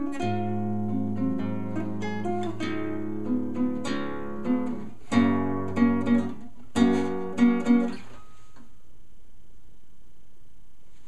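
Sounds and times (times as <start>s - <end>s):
acoustic guitar plucked melody: 0.0s - 8.8s.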